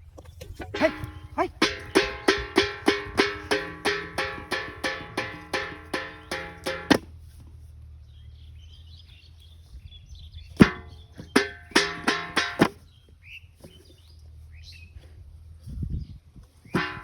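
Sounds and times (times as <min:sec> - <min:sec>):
bowl knocking and rattling: 0:00.5 - 0:07.0.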